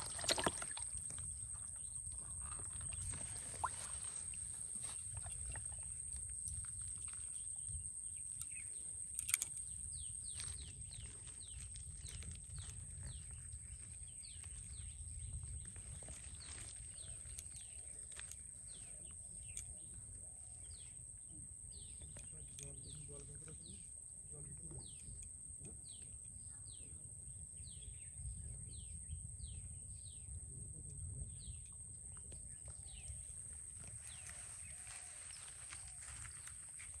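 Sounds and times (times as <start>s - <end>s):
birds chirping: 0.0s - 21.0s, 32.3s - 37.0s.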